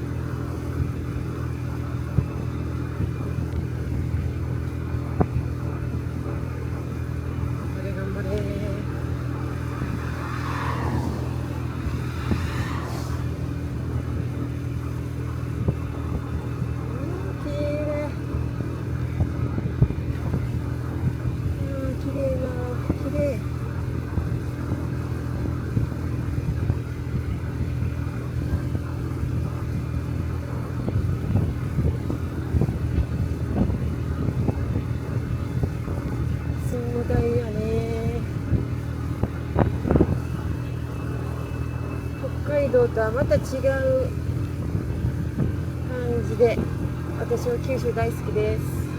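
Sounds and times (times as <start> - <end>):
road noise: 0.0 - 48.9
scooter engine running: 0.0 - 48.9
wind buffeting microphone: 0.0 - 48.9
brief whooshes: 9.5 - 14.1.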